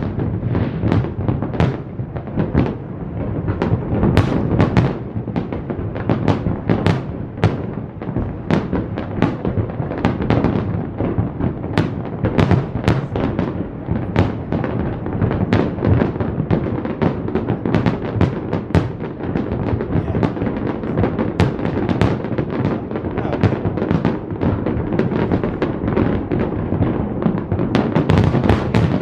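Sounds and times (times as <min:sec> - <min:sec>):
fireworks booming and banging: 0:00.0 - 0:29.0.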